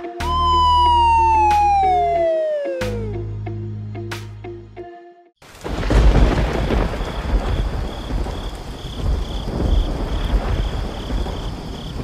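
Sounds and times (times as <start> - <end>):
high-pitched pulsing tone: 0.2 - 3.3
heavy rain: 5.4 - 12.0
low rolling thunder: 5.6 - 12.0.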